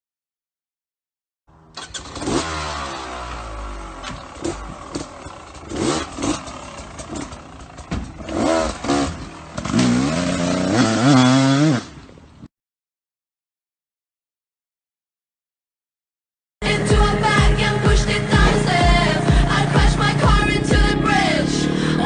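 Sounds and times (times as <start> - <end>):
dirt bike engine revving: 1.6 - 12.0, 16.6 - 22.0
clattering: 4.0 - 8.9.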